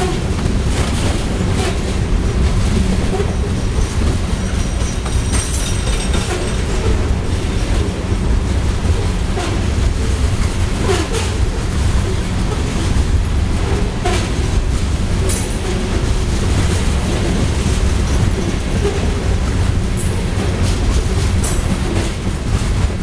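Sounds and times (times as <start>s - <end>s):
freight train rumbling: 0.0s - 23.0s
wheel clicks over rail joints: 3.3s - 6.9s.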